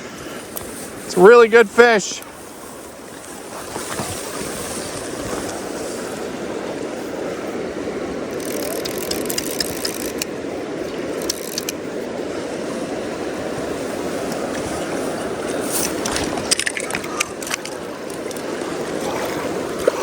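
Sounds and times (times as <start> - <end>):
river water rushing: 0.0 - 20.0
light sharp clicks: 11.2 - 11.8.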